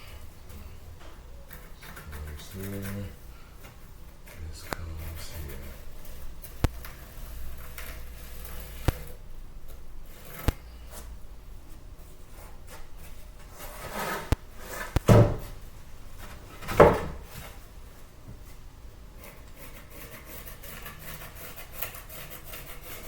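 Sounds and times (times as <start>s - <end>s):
scraping knocks: 13.5s - 15.6s.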